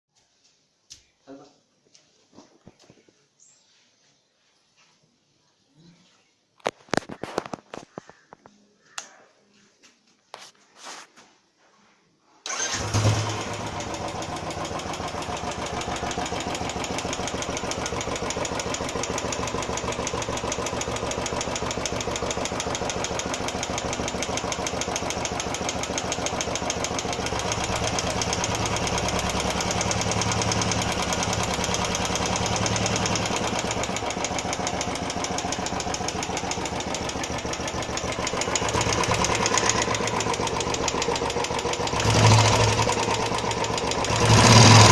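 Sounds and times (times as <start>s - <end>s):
motorcycle engine starting and idling: 12.4s - 44.9s.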